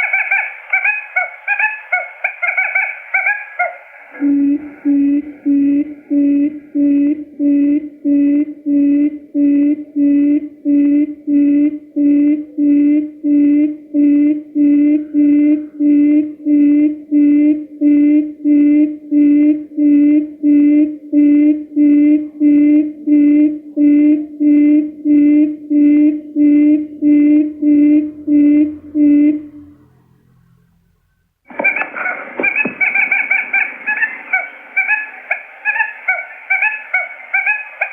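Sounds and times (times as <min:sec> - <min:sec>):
quail lure call hooting: 0:00.0 - 0:08.0, 0:31.5 - 0:37.9.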